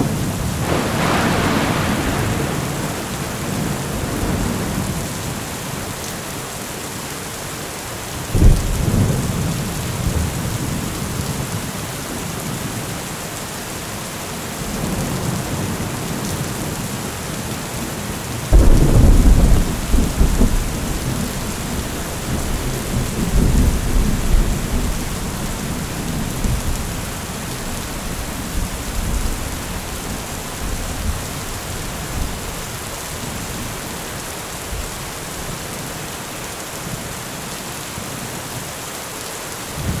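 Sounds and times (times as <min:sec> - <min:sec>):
thunder cracks rumbling: 0:00.0 - 0:06.0, 0:18.5 - 0:33.4
heavy rain falling: 0:00.0 - 0:40.0.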